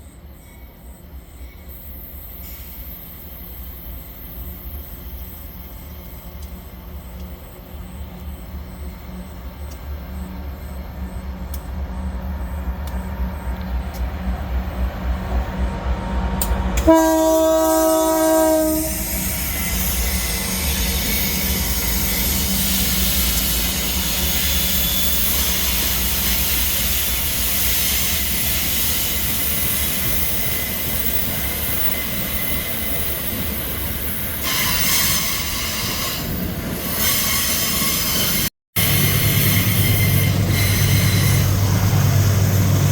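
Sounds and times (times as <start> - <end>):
train wagons rolling past: 0.2 - 42.9
locomotive horn blast: 16.8 - 19.2.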